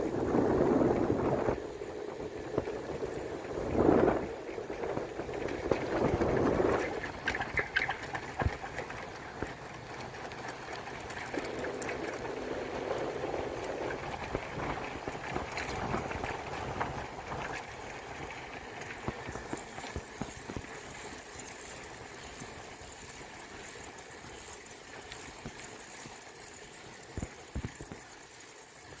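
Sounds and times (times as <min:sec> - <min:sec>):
road rumble: 0:00.0 - 0:20.4
wind on microphone: 0:00.0 - 0:20.8
bicycle rattles and clicks: 0:00.0 - 0:29.0.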